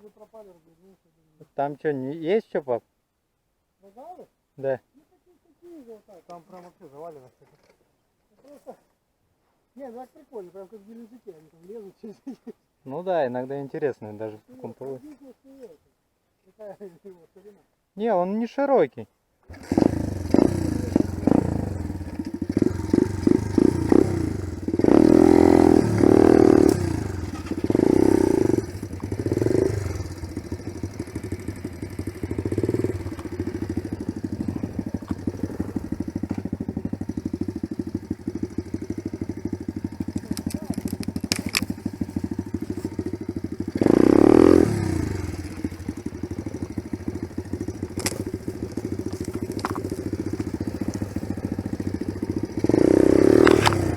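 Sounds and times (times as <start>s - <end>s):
dirt bike engine revving: 19.5s - 53.9s.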